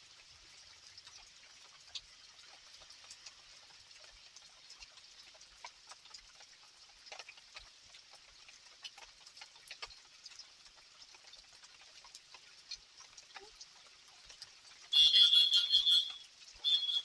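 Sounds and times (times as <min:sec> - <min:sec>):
light rain: 0:00.0 - 0:17.0.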